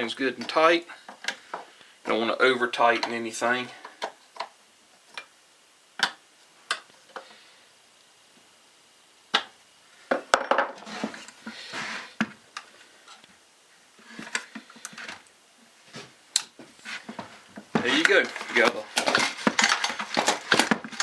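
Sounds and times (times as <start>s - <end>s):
plastic parts and tools clattering: 17.6s - 21.0s.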